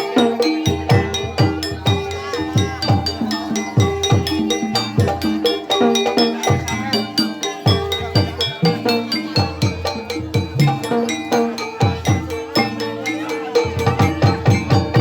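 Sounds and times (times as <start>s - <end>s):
wavering high melodic line: 0.0s - 15.0s.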